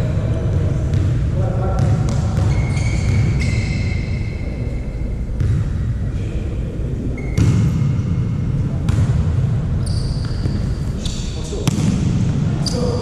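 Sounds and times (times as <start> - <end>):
volleyball impacts: 11.6 - 12.6.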